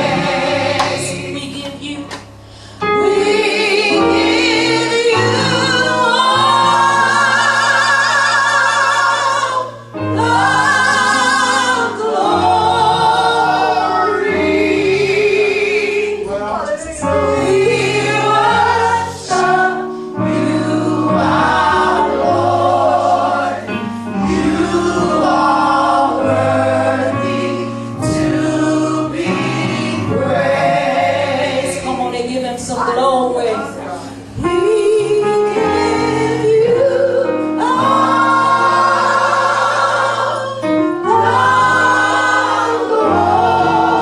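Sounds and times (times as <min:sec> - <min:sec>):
bass and keyboard chords: 0:00.0 - 0:44.0
gospel choir singing: 0:00.0 - 0:44.0.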